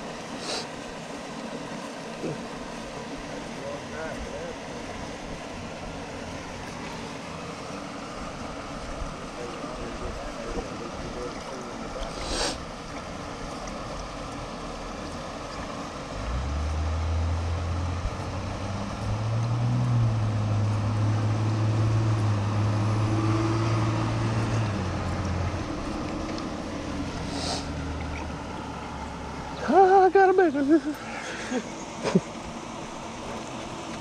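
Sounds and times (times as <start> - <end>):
low engine hum: 0.0 - 34.0
background hiss: 27.2 - 27.8.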